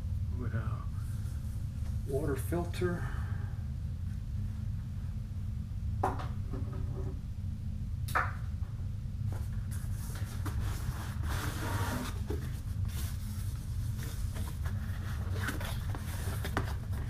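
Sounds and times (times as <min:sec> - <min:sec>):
steady low hum: 0:00.0 - 0:17.0
plastic and cardboard rustling: 0:09.7 - 0:17.0.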